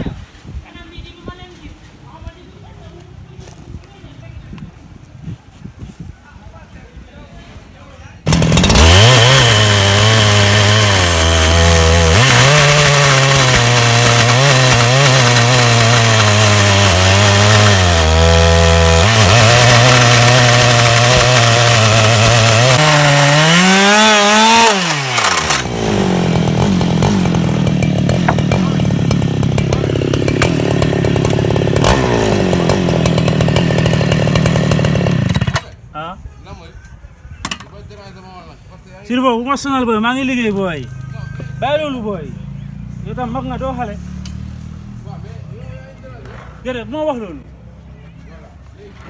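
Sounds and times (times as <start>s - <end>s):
chainsaw cutting a log: 8.3s - 35.7s.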